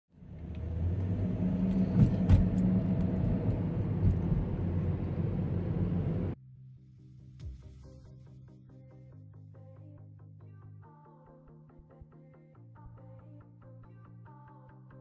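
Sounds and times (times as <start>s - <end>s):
low engine rumble: 0.1s - 6.4s.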